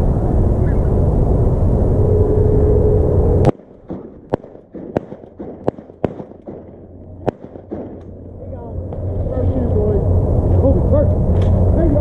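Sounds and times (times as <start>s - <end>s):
shotgun shots: 3.5s - 8.0s.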